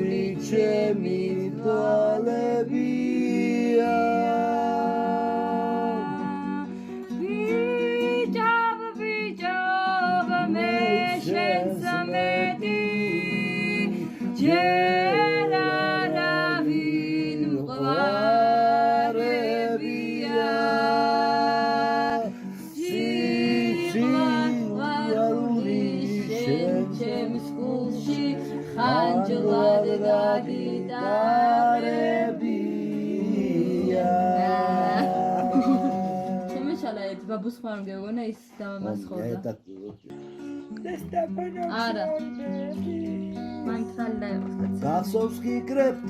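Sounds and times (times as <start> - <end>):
plucked string instrument: 0.0 - 37.6, 39.7 - 46.0
person singing long notes: 9.2 - 36.8, 40.1 - 44.0.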